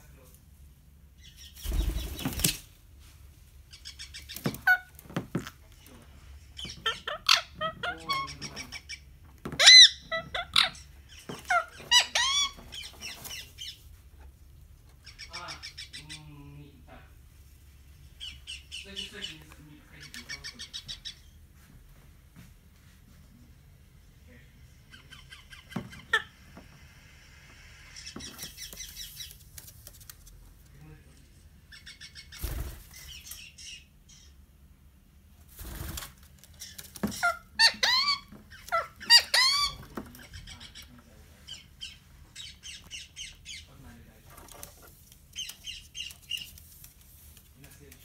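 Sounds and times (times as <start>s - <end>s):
birds chirping and chattering: 1.2s - 2.7s, 3.6s - 17.1s, 17.9s - 21.5s, 24.6s - 26.8s, 27.6s - 30.0s, 30.7s - 34.5s, 35.6s - 46.9s.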